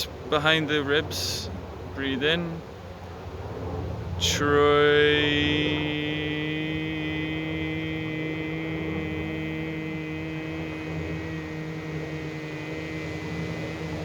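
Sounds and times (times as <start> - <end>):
man humming long steady tone: 0.0 - 2.8, 4.2 - 14.0.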